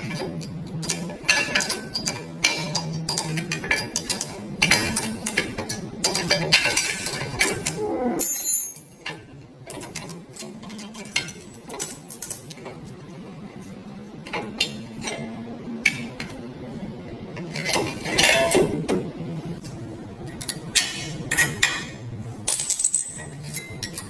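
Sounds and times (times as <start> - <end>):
metal tools clinking: 8.2 - 9.1.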